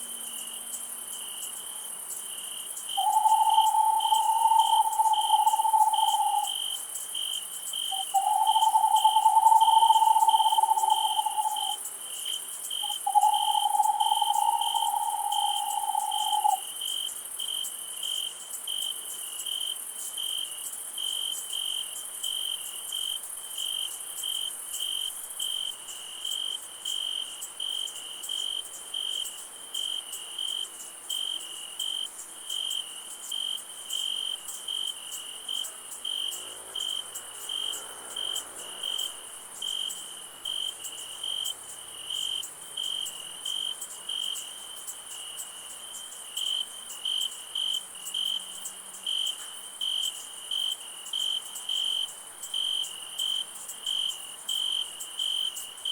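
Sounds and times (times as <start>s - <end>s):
cricket chirping: 0.0s - 55.9s
high-pitched insect trill: 0.0s - 55.9s.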